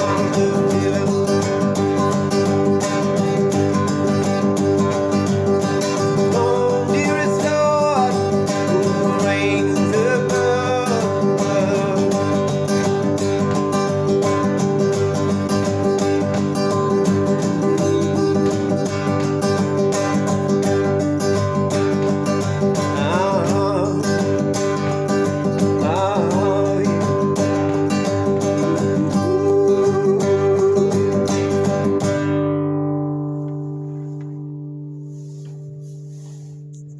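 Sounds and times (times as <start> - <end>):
person singing: 0.0 - 2.4, 6.0 - 13.1, 17.2 - 19.0, 22.7 - 32.0
acoustic guitar strumming: 0.0 - 36.9.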